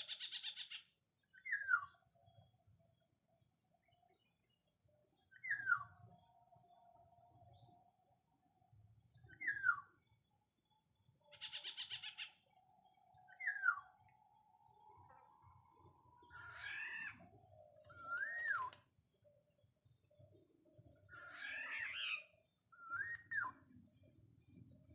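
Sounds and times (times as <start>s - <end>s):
bird harsh rasping call: 11.3s - 12.4s
bird whistled call: 13.3s - 13.9s, 17.9s - 18.8s, 22.8s - 23.6s.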